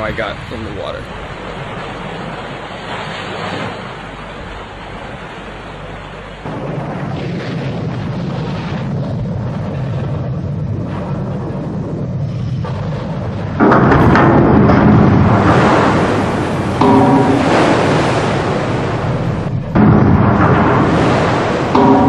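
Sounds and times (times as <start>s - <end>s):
deep rumble: 0.0s - 22.0s
wind and water rushing: 0.0s - 22.0s.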